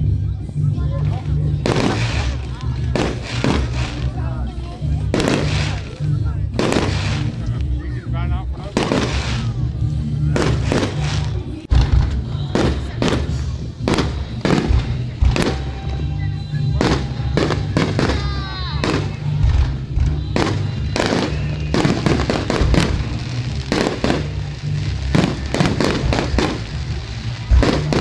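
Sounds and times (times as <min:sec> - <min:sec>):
fireworks bursting: 0:00.7 - 0:07.8, 0:08.6 - 0:28.0
whistling firework shells: 0:20.0 - 0:23.2.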